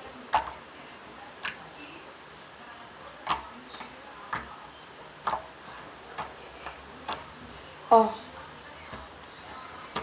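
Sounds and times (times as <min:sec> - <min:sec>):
hardened slime clicking: 0:00.3 - 0:00.6, 0:05.2 - 0:07.8.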